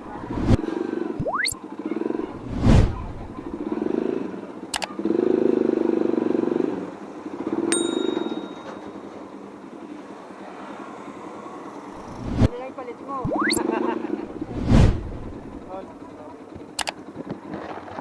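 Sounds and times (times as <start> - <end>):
motorcycle engine surging: 0.0 - 9.5, 11.6 - 12.6, 13.2 - 18.0
sharp clicks: 4.7 - 5.0, 16.8 - 17.0
ringing metallic ding: 7.7 - 9.0.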